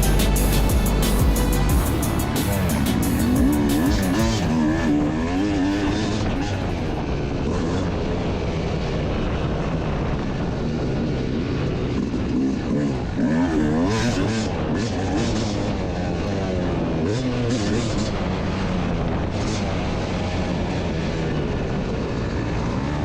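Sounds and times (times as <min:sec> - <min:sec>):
track noise: 0:00.0 - 0:16.2
dirt bike engine revving: 0:00.0 - 0:23.0
rumbling wind: 0:00.0 - 0:23.0.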